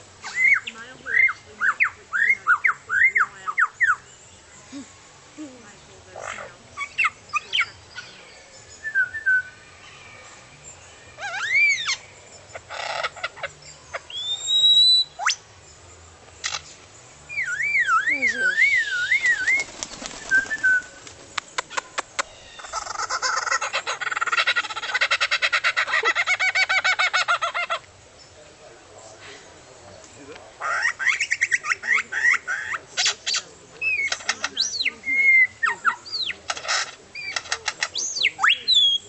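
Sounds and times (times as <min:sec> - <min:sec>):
lyrebird singing mimicked calls: 0:00.2 - 0:04.1, 0:06.1 - 0:08.2, 0:11.2 - 0:15.4, 0:17.3 - 0:19.7, 0:30.6 - 0:39.0.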